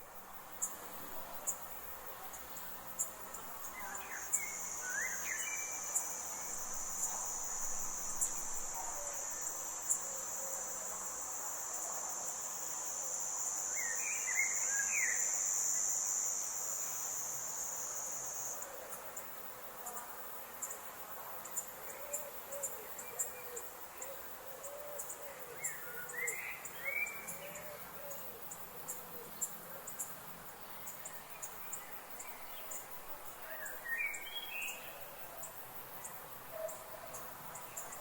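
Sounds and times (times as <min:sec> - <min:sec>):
high-pitched insect trill: 0:00.0 - 0:38.0.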